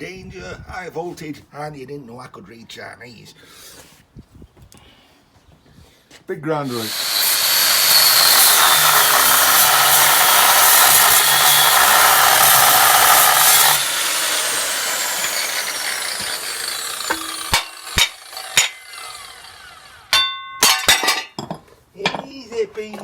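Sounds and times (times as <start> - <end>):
angle grinder cutting steel: 6.6 - 21.1
metallic knocks: 20.1 - 22.3.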